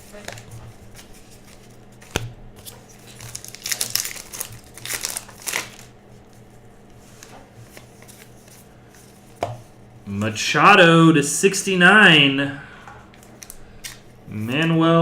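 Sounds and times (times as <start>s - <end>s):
card pack wrapper crinkling: 0.0s - 6.0s, 13.1s - 14.6s.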